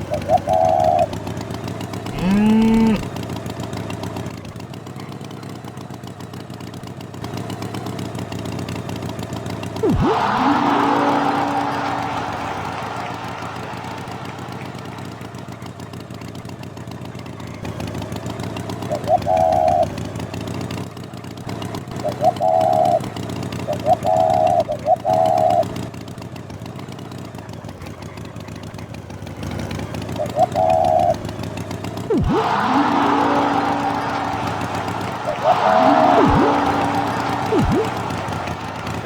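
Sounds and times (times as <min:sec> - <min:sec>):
engine hum: 0:00.0 - 0:39.0
swooping pitch glide: 0:02.1 - 0:03.1, 0:09.8 - 0:15.3, 0:32.1 - 0:39.0
loud horn-like beeps: 0:09.8 - 0:14.9, 0:32.1 - 0:39.0.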